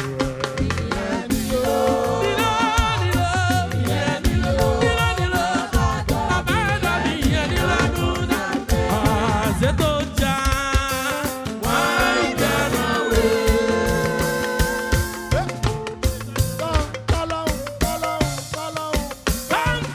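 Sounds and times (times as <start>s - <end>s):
gospel band dance beat: 0.0s - 19.9s
lead melody voice or keyboard: 6.5s - 18.6s.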